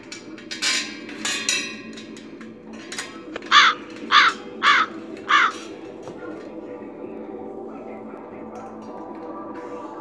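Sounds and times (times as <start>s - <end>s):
bird cawing: 3.5s - 5.7s.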